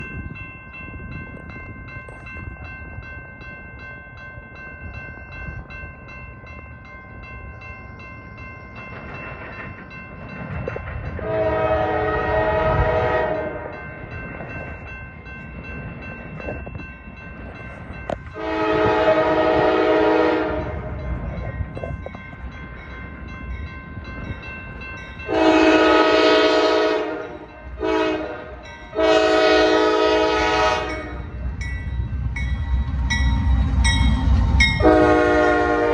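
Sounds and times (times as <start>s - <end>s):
train rumbling: 0.0s - 35.9s
locomotive air horn blasts: 11.2s - 13.7s, 18.3s - 20.9s, 25.3s - 31.4s, 34.8s - 35.9s.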